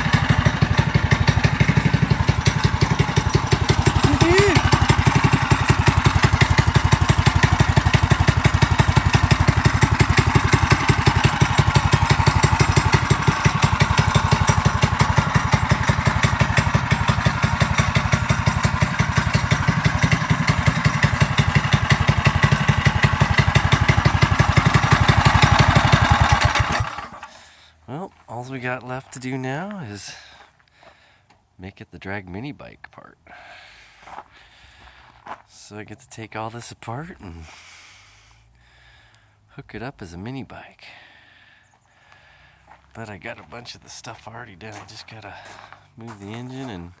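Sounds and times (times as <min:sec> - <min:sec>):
small engine running: 0:00.0 - 0:27.4.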